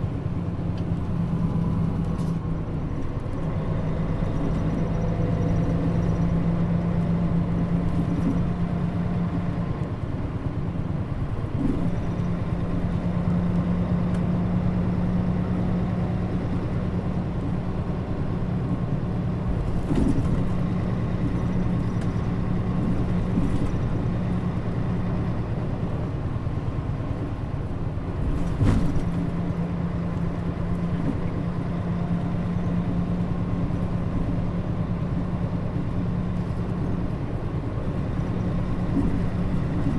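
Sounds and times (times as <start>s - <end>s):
bus diesel engine drone: 0.0s - 39.9s
bus body knocks and rattles: 19.4s - 24.4s, 28.0s - 29.6s, 38.0s - 39.9s.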